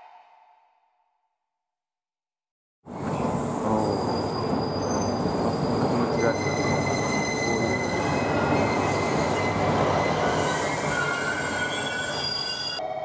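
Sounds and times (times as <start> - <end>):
train wheels rumbling on rail: 2.9 - 12.8
high squealing tones: 3.9 - 12.8.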